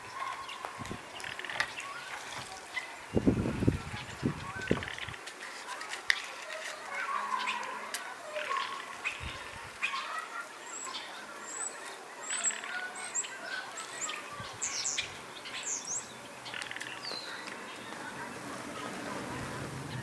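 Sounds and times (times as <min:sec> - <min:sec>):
birds chirping: 0:00.0 - 0:20.0
lower bird calls: 0:06.7 - 0:20.0.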